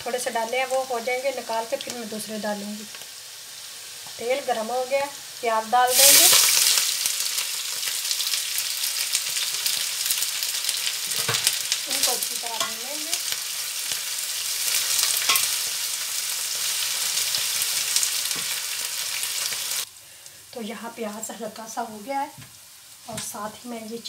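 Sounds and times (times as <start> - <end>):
onions sizzling in hot oil: 0.0 - 24.0
spoon clicking against pan: 15.2 - 15.5.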